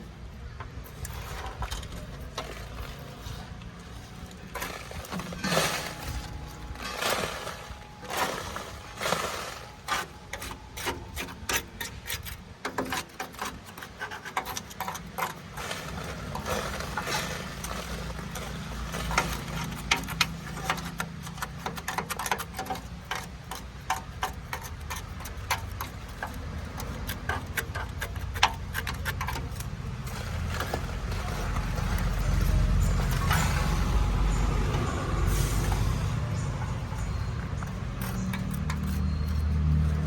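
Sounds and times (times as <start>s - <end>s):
engine rumble: 0.0s - 40.0s
sharp clicks and knocks: 3.9s - 35.0s.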